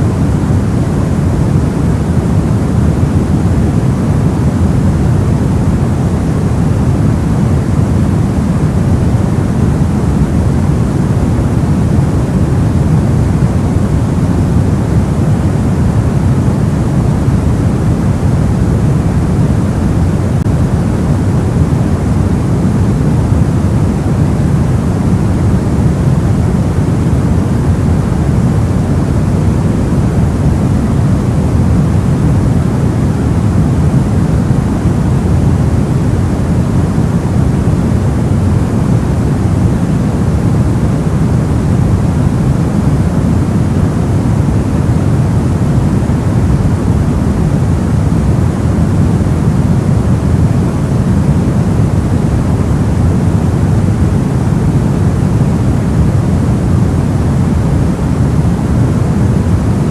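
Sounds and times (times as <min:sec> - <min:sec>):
deep muffled white noise: 0:00.0 - 0:59.9.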